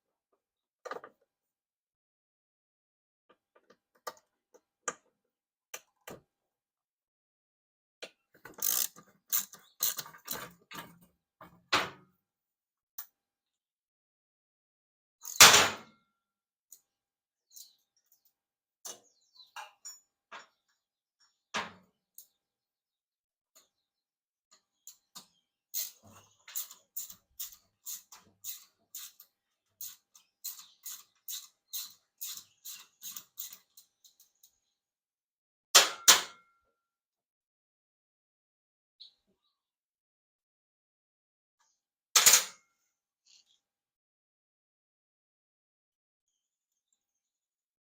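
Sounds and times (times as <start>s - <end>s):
ratchet clicking: 8.6s - 10.4s, 25.8s - 29.2s, 29.8s - 33.8s.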